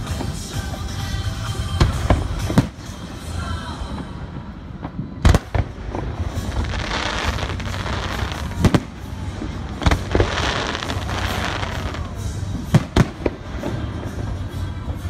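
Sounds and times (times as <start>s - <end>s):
fireworks crackling hiss: 0.0s - 15.0s
fireworks bangs: 1.7s - 15.0s.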